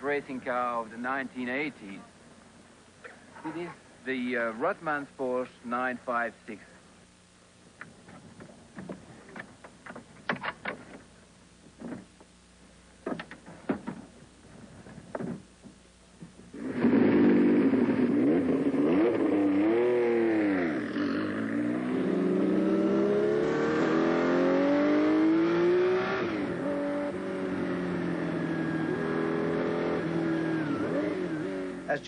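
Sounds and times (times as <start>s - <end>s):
race car engine at speed: 16.5s - 32.0s.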